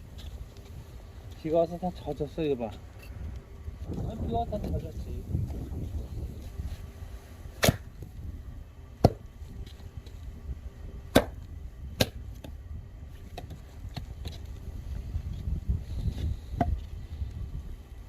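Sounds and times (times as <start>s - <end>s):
blade chopping firewood: 7.6s - 8.1s, 9.0s - 9.3s, 11.1s - 12.6s, 13.3s - 14.4s.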